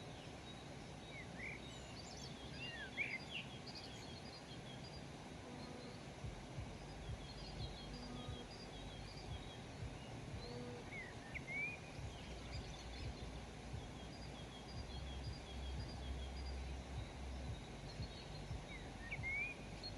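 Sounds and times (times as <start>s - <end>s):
birds chirping: 0.0s - 19.9s
steady low rumble: 3.9s - 19.9s
rising whistled bird call: 10.4s - 17.2s, 17.9s - 19.9s.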